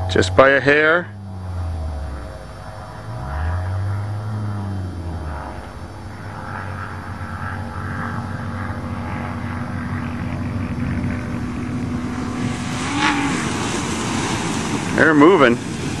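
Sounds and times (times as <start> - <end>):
car engines droning: 0.0 - 16.0.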